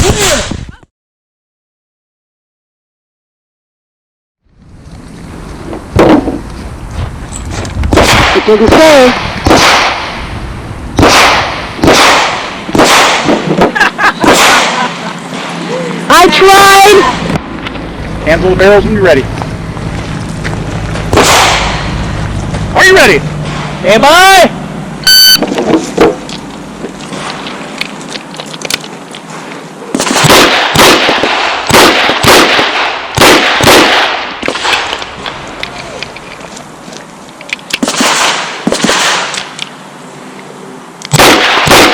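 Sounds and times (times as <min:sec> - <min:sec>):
handgun gunshots: 0:11.0 - 0:13.4, 0:30.0 - 0:34.9, 0:41.1 - 0:41.9
shot timer beep: 0:25.0 - 0:25.5.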